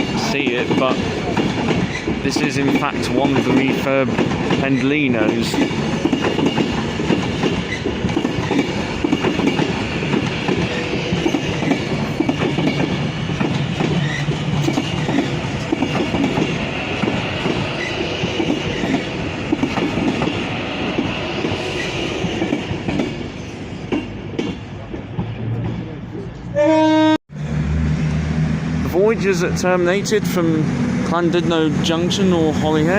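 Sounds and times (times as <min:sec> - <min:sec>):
train wheels clattering: 0:00.0 - 0:25.9.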